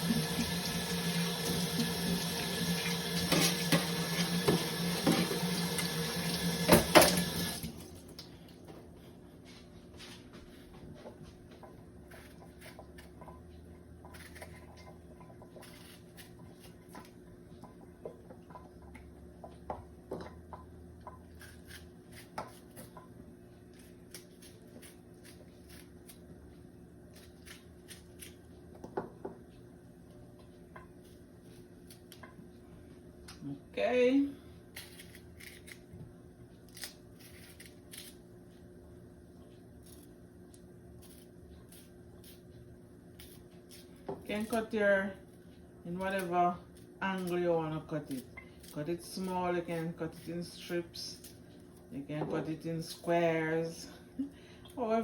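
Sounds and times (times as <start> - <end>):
tap running into sink: 1.4 - 7.6.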